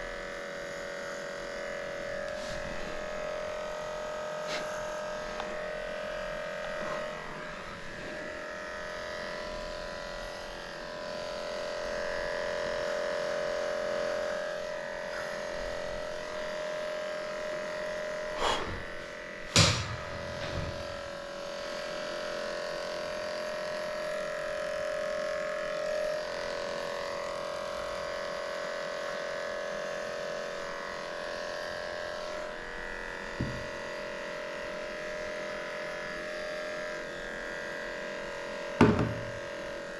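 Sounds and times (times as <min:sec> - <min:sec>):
electric clippers humming: 0:00.0 - 0:39.9
sharp knocks: 0:19.5 - 0:20.8, 0:38.8 - 0:39.3.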